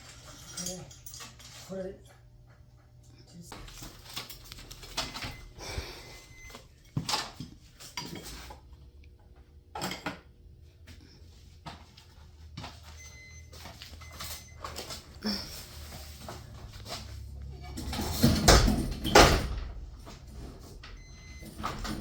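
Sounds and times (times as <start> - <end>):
metal clinks and knocks: 0.0 - 2.2.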